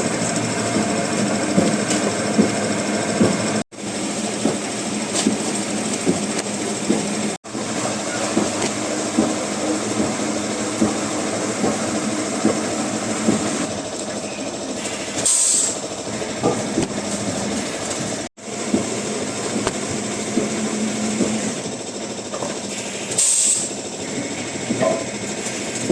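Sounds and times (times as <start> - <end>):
wood-processing machinery humming: 0.0 - 25.9
machinery knocks: 4.3 - 13.6
short hiss: 22.9 - 23.8.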